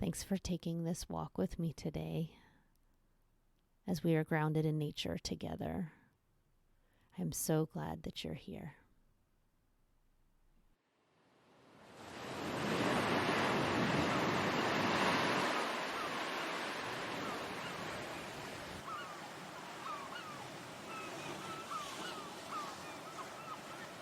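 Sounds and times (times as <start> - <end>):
surf or wind rushing: 11.5 - 23.0
birds chirping: 13.8 - 24.0.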